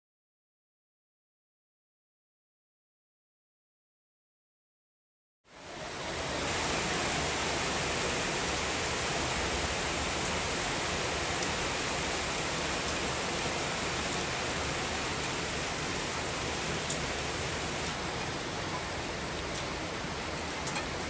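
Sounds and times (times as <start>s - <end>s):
heavy rain pouring: 5.5s - 21.0s.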